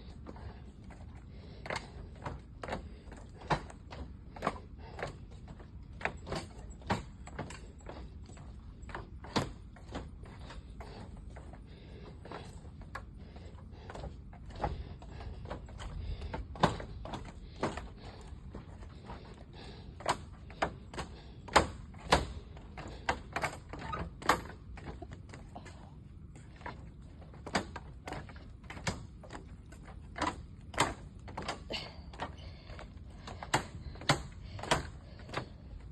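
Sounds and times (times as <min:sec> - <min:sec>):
sharp clicks and knocks: 0:26.5 - 0:35.9.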